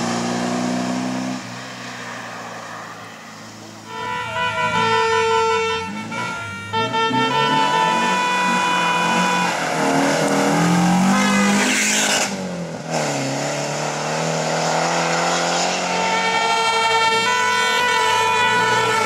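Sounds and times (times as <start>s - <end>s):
rally car engine revving: 5.9s - 17.5s.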